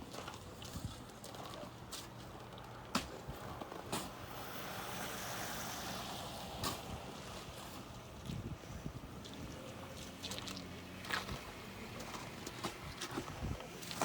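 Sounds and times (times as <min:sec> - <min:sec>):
tyres hissing on wet road: 0:04.0 - 0:07.8.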